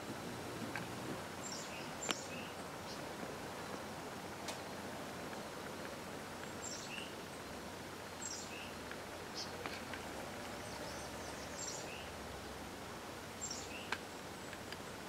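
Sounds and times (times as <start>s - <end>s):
small bird chirping: 1.4s - 3.1s, 6.4s - 12.2s, 13.4s - 14.7s.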